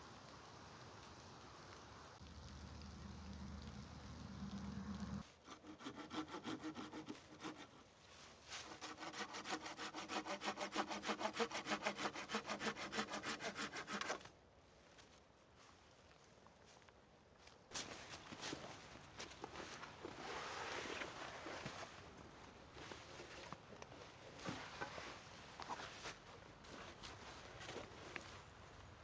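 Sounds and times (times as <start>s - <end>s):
low steady rumble: 2.2s - 5.2s
hand saw cutting wood: 5.3s - 7.8s, 8.6s - 14.2s.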